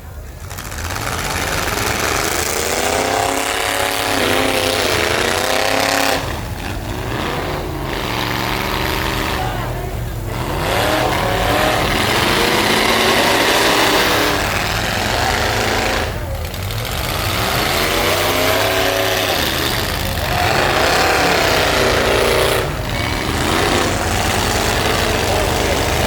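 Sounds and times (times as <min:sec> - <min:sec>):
truck engines revving: 0:00.0 - 0:26.0.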